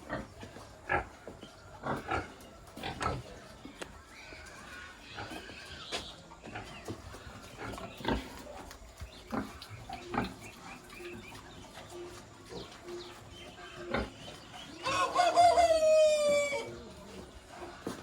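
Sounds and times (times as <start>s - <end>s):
pigs grunting: 0.0s - 3.6s, 6.4s - 14.5s.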